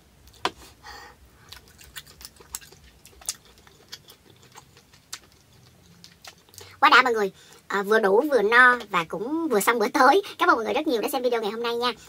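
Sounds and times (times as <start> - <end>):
person chewing: 1.4 - 6.8.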